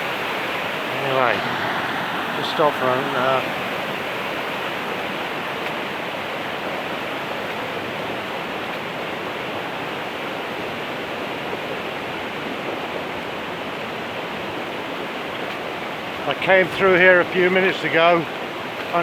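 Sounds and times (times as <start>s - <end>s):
river rushing in flood: 0.0s - 19.0s.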